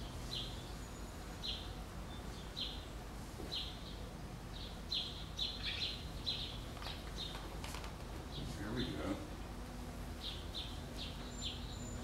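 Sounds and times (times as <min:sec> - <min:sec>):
small bird chirping: 0:00.0 - 0:07.5, 0:10.2 - 0:12.0
low steady hum: 0:00.0 - 0:12.0.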